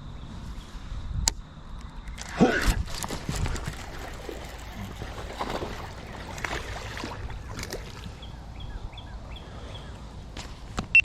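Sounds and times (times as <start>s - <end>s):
water sloshing around boat: 2.0s - 10.3s.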